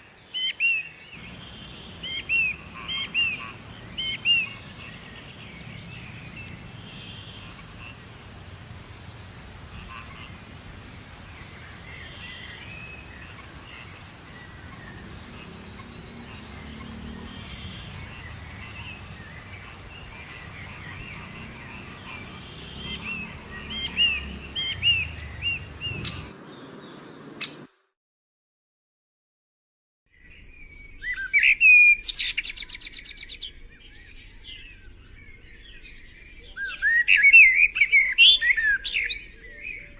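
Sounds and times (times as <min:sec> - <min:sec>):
small birds chirping and singing: 0:00.0 - 0:27.8, 0:30.1 - 0:39.9
bird singing fast repeated notes: 0:01.2 - 0:27.7.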